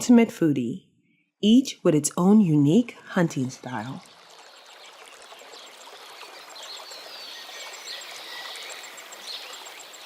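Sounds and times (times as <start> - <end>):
faint running water: 2.2 - 10.0
small bird calls: 4.0 - 10.0.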